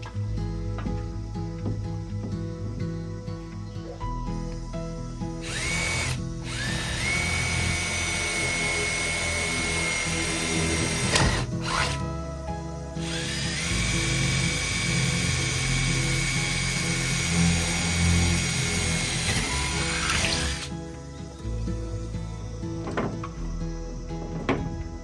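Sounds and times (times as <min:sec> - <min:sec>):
background music: 0:00.0 - 0:25.0
power drill whining: 0:05.4 - 0:12.0, 0:13.0 - 0:20.8.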